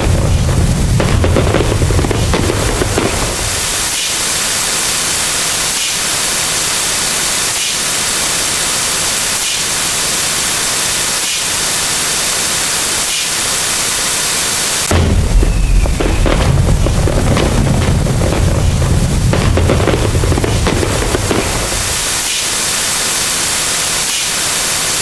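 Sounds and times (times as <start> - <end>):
static-like white noise: 0.0 - 25.0
loud deep sound: 14.9 - 21.3.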